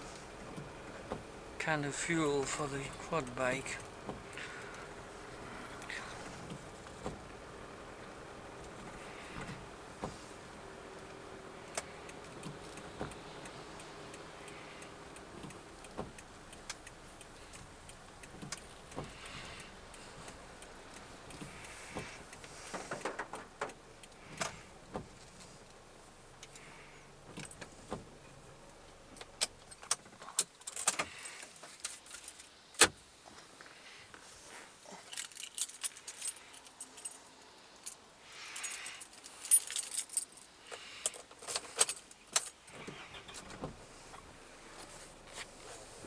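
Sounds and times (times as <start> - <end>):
keys jangling: 35.0 - 43.5.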